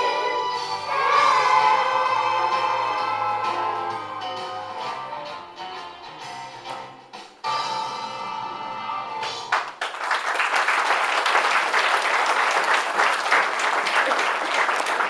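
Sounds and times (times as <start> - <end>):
music: 0.0 - 9.8
audience applause: 9.5 - 15.0.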